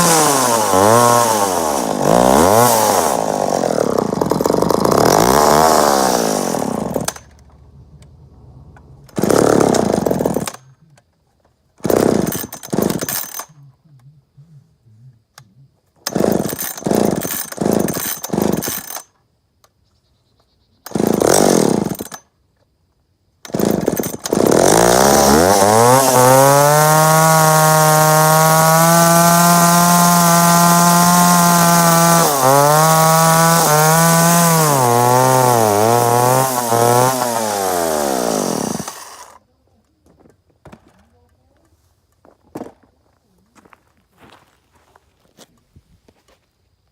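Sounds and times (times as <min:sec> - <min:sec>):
chainsaw revving: 0:00.0 - 0:07.4, 0:09.1 - 0:10.6, 0:11.8 - 0:13.4, 0:16.1 - 0:19.0, 0:20.9 - 0:22.2, 0:23.4 - 0:39.4.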